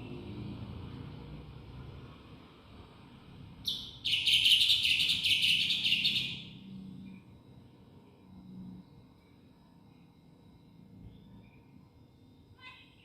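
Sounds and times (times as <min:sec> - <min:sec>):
bird singing: 0:03.6 - 0:06.6.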